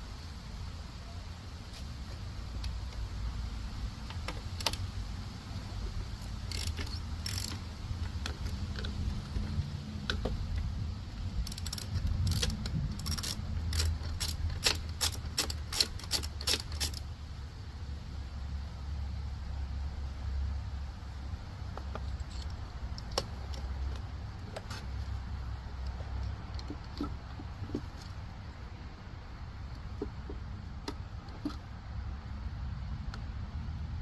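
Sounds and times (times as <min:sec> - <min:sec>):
metal tools clicking and clinking: 0:06.2 - 0:09.1, 0:22.0 - 0:23.7.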